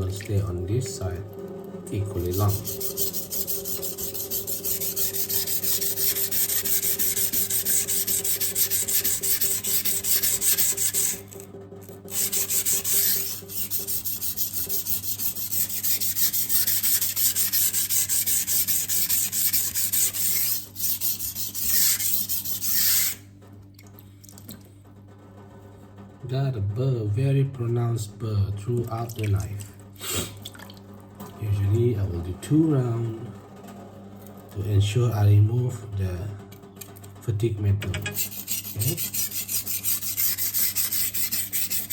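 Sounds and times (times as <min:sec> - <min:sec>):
knife scraping on sharpening stone: 0:02.2 - 0:11.4, 0:12.1 - 0:23.2, 0:37.8 - 0:41.9.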